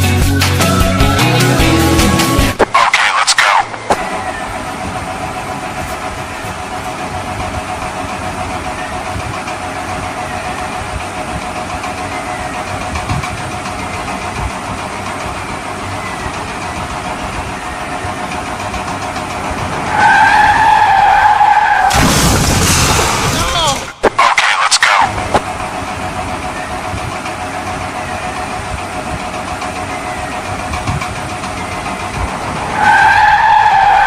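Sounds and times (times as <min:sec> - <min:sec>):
engine running steadily: 0:00.0 - 0:34.0
loud steady pitched tone: 0:00.4 - 0:13.0, 0:24.0 - 0:30.7.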